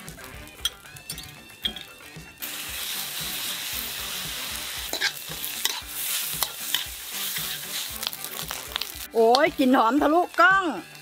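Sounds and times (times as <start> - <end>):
rice sizzling in a wok: 0.0 - 1.4, 2.0 - 11.0
background music: 0.0 - 11.0
metal spatula scraping a pan: 2.7 - 8.9.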